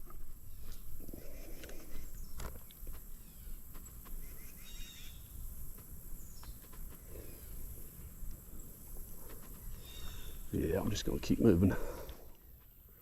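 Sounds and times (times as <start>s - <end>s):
bird chirps: 3.2s - 5.4s, 9.5s - 10.5s.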